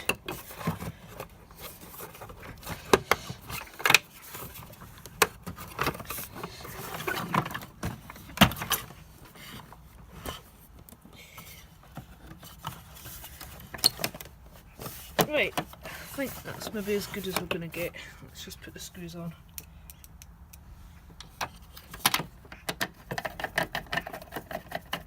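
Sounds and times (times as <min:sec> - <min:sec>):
plastic parts clicking and knocking: 0:00.0 - 0:17.9, 0:21.2 - 0:25.0
handling rustle: 0:00.0 - 0:19.5.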